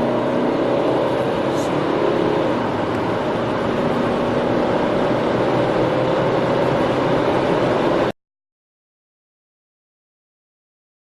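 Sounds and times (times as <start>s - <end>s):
car engine drone: 0.0s - 8.2s
road noise: 0.0s - 8.2s.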